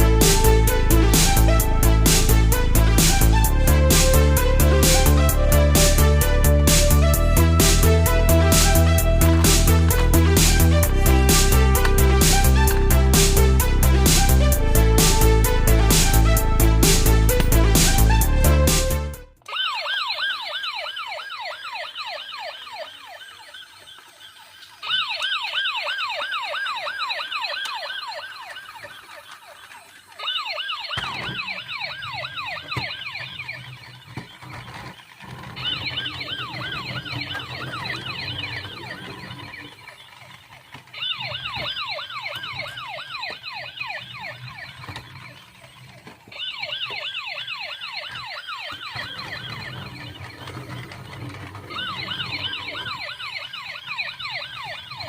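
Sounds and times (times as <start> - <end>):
toy police siren warbling: 19.4 - 55.0.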